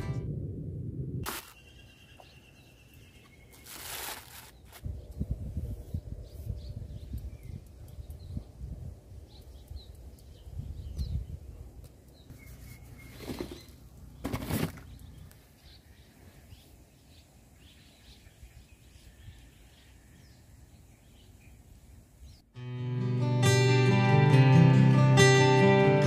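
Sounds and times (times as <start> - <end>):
faint birds chirping: 1.4 - 22.5
acoustic guitar music: 22.6 - 26.0.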